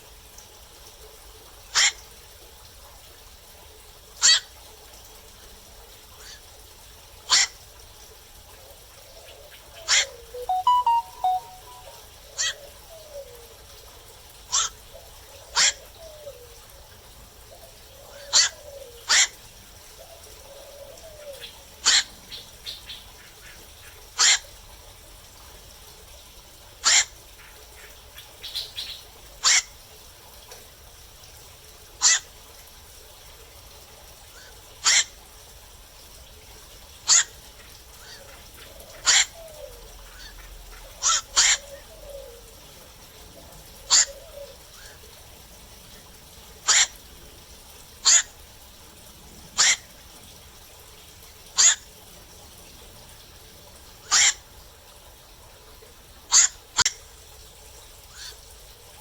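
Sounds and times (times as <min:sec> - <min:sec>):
herons calling: 0:09.8 - 0:11.8, 0:49.6 - 0:49.9.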